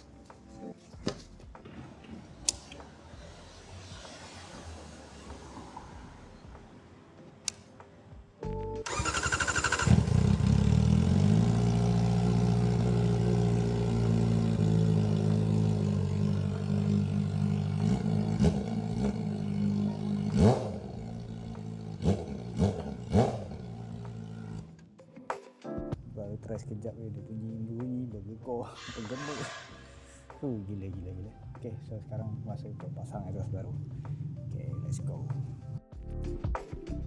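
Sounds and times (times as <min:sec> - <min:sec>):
motorcycle engine starting and revving: 0:08.8 - 0:24.9.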